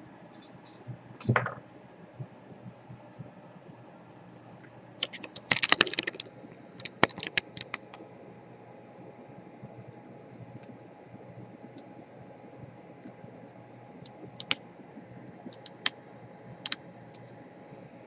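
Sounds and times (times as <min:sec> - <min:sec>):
hand tools clicking on laptop: 0:05.0 - 0:08.0, 0:14.4 - 0:14.6, 0:15.4 - 0:16.0.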